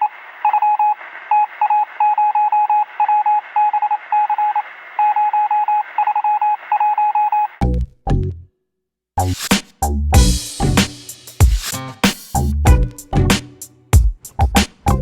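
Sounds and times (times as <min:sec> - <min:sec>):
radio hiss: 0:00.0 - 0:06.8
electronic beep pulses: 0:00.4 - 0:07.6.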